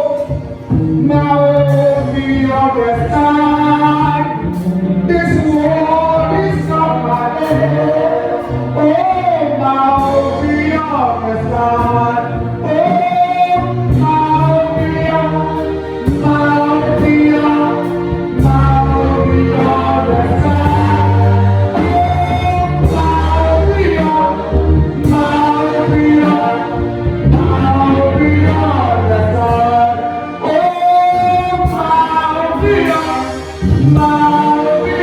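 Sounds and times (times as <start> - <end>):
congregation singing gospel: 0.0 - 35.0
bass line and beat: 13.6 - 30.0.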